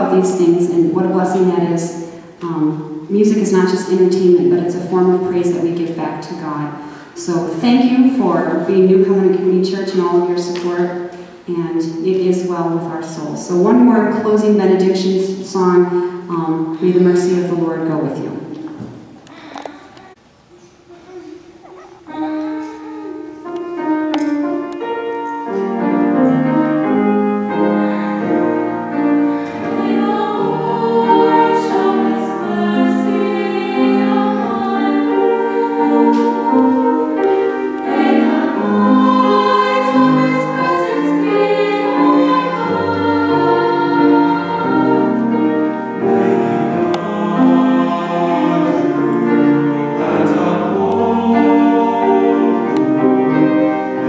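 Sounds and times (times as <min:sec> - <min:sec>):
piano accompaniment: 0:00.0 - 0:19.1, 0:21.4 - 0:54.0
choir singing in harmony: 0:24.9 - 0:54.0.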